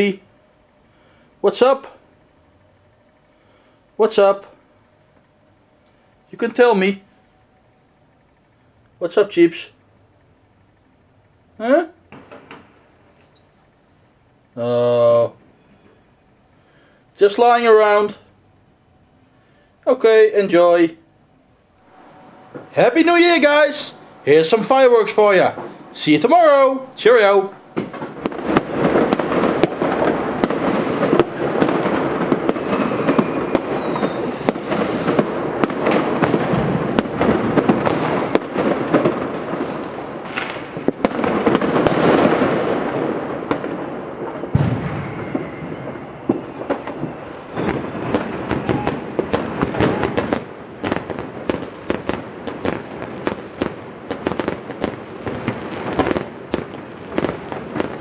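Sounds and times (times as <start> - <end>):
fireworks banging and crackling: 12.1 - 13.4, 21.9 - 58.0.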